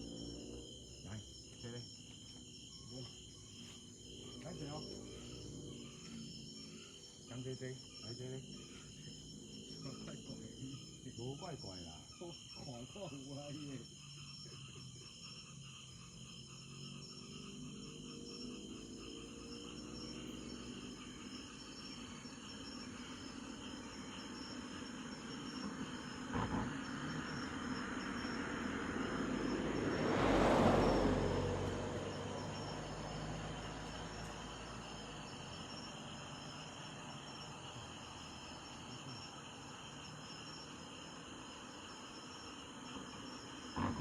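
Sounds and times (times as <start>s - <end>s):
vehicle passing: 0.0s - 1.7s, 3.0s - 7.5s, 15.5s - 44.0s
insects chirring: 0.0s - 44.0s.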